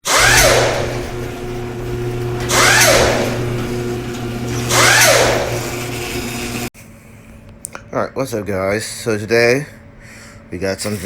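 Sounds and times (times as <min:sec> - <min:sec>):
low hum: 0:00.1 - 0:06.7.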